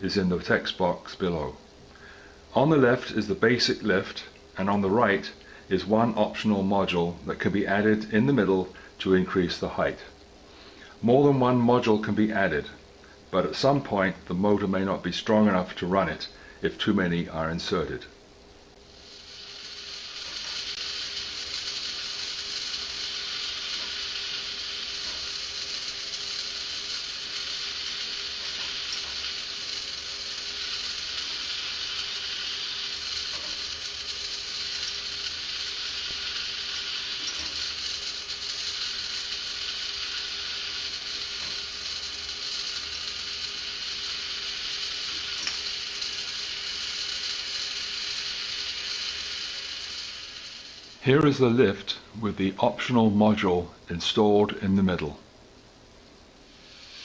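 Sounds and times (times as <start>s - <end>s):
faint hum: 0.0s - 57.0s
toy motor and gears whirring: 18.9s - 51.9s, 56.5s - 57.0s.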